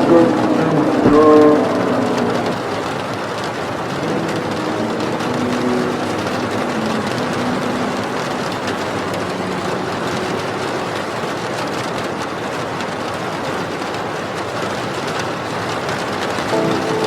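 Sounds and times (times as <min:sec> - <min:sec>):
faint music: 0:00.0 - 0:12.4, 0:16.5 - 0:17.0
steady rain: 0:00.0 - 0:17.0.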